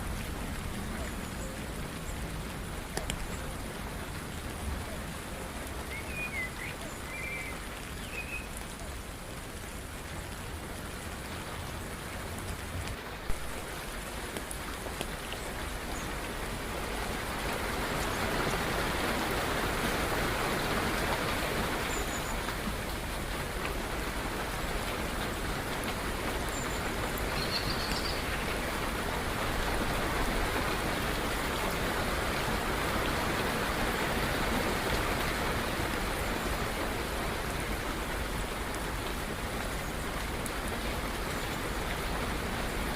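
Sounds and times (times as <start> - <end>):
steady rain falling: 0.0 - 42.9
faint bird chirps: 5.9 - 8.5.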